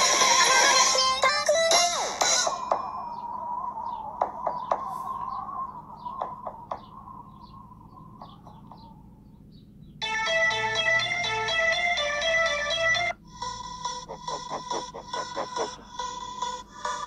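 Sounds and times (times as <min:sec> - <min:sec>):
birds chirping: 0:01.2 - 0:17.0
wavering tone: 0:02.4 - 0:09.2.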